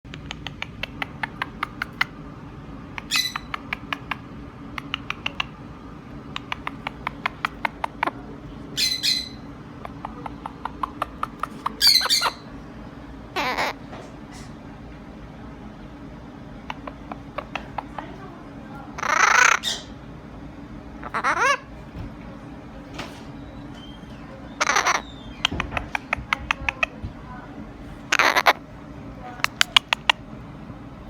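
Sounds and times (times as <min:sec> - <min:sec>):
bird chirping quickly: 0:03.0 - 0:04.2, 0:04.8 - 0:05.6, 0:06.3 - 0:08.2, 0:08.8 - 0:12.5, 0:23.4 - 0:27.0
bird squawking harshly: 0:08.8 - 0:12.5, 0:13.4 - 0:13.8, 0:19.0 - 0:20.0, 0:21.0 - 0:21.7, 0:24.6 - 0:26.9, 0:28.1 - 0:28.6.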